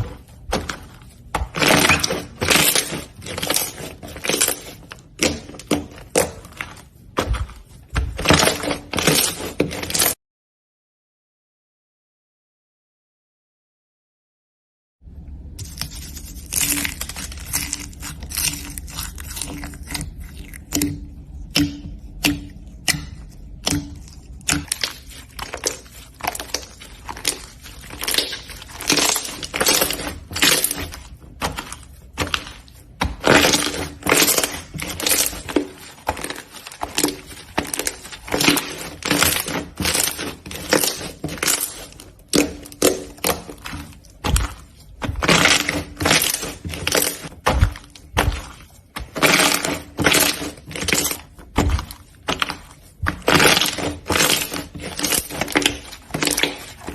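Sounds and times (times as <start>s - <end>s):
slime crackling and popping: 15.5s - 56.9s.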